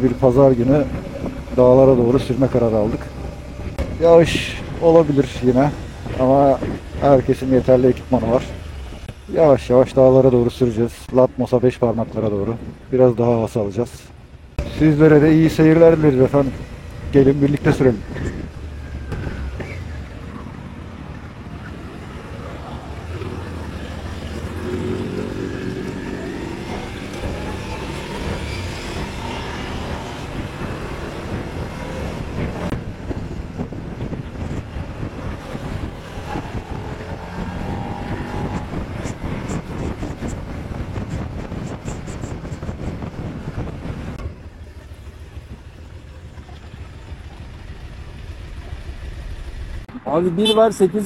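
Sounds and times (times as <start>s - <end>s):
wind noise: 0.0s - 9.3s, 14.5s - 44.8s
motorcycle engine accelerating: 15.9s - 50.0s.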